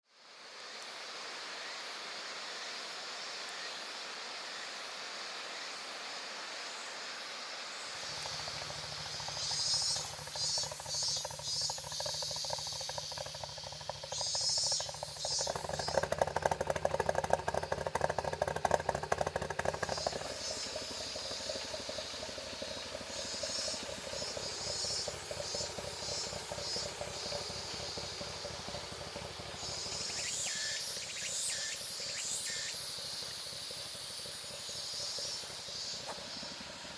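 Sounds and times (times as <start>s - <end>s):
cicadas buzzing: 0.2s - 36.9s
car engine running: 7.9s - 36.9s.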